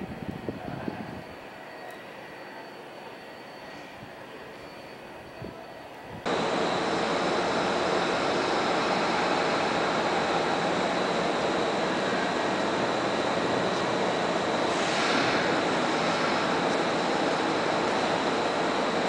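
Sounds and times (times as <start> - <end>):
faint high whine: 0.0 - 19.0
train rushing along track: 0.0 - 19.0.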